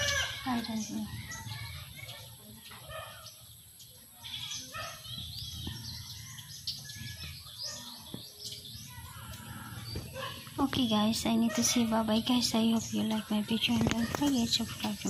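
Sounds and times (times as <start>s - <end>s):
farm animal calls: 0.0s - 8.1s
birds chirping: 0.0s - 15.0s.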